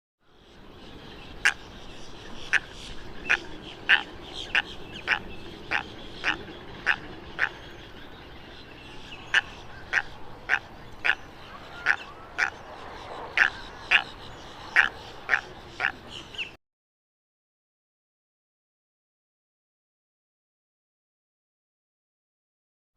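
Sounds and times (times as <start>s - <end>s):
steady background hiss: 0.3s - 16.6s.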